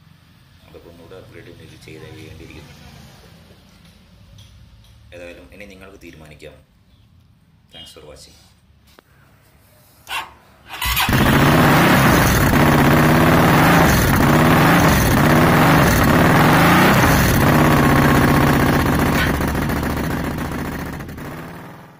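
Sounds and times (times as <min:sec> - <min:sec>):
motorcycle engine starting and idling: 0:10.1 - 0:21.9.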